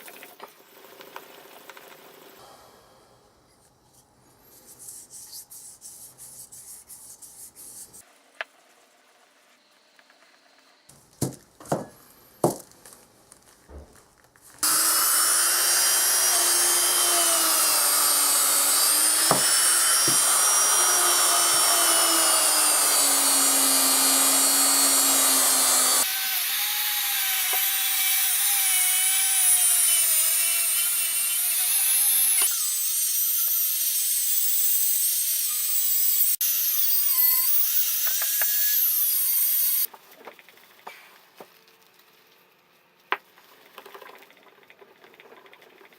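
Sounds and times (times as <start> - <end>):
power tool motor whine: 14.6 - 39.9.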